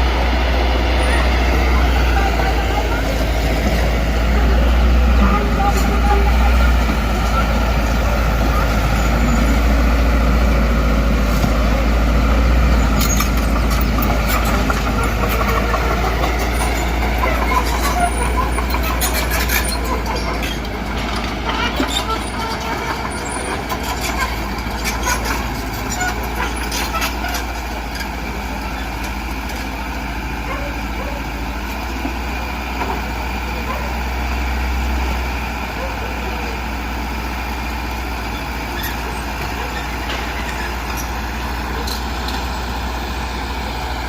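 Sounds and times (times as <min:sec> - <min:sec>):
bulldozer engine rumbling: 0:00.0 - 0:44.0.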